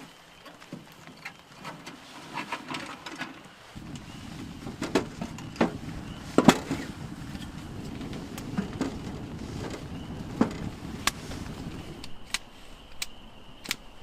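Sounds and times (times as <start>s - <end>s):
wood fire crackling: 3.5s - 12.4s
low rushing background: 3.7s - 14.0s.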